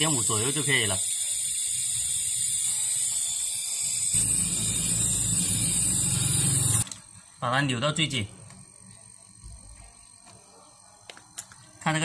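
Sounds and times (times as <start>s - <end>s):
air hissing through fittings: 0.0s - 6.8s
low hum: 4.2s - 6.8s.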